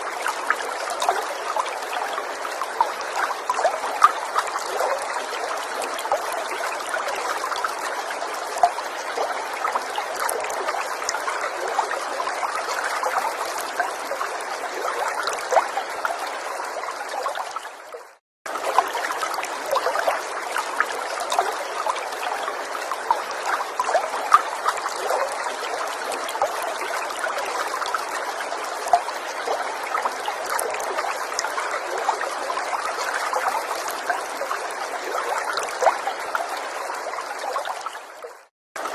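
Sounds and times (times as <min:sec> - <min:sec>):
stream trickling and babbling: 0:00.0 - 0:38.9.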